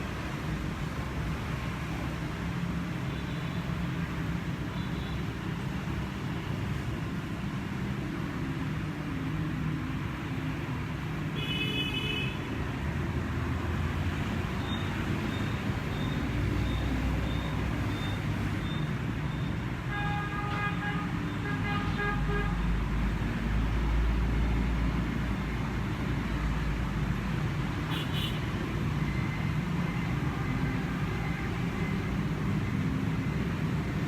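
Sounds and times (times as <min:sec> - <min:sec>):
road traffic: 0:00.0 - 0:34.0
vehicle horn tooting: 0:27.9 - 0:28.5.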